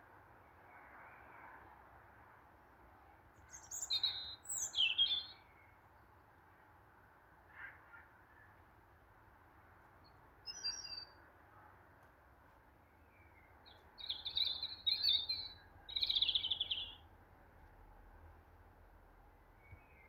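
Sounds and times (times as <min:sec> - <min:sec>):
songbird twittering: 0:03.5 - 0:05.4, 0:10.5 - 0:11.1, 0:13.2 - 0:17.0.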